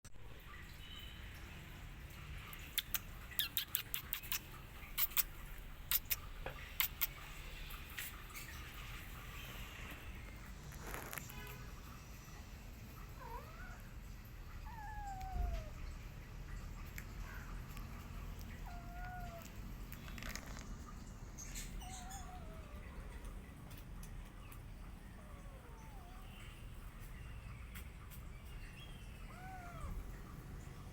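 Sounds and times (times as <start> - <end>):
cats chewing and lapping: 2.1 - 13.2, 15.1 - 30.9
faint clicks: 2.5 - 7.2
kittens mewing: 2.8 - 6.2, 13.2 - 13.9, 14.6 - 15.8, 18.4 - 19.7, 21.6 - 23.5, 25.0 - 26.4, 29.2 - 30.6.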